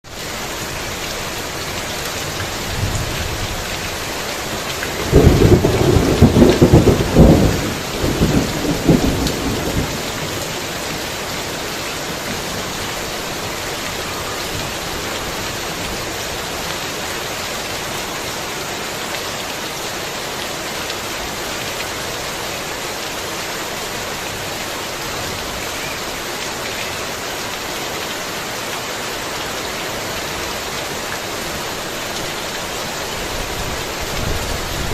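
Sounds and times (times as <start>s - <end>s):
heavy rain falling: 0.0s - 34.9s
loud rumbling thunderclap: 5.0s - 10.3s.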